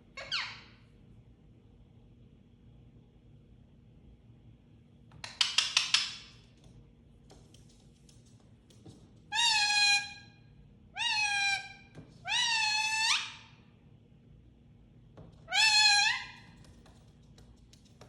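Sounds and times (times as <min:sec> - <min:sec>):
parrot calling: 0:00.1 - 0:00.8, 0:09.3 - 0:10.3, 0:10.9 - 0:13.6, 0:15.4 - 0:16.6.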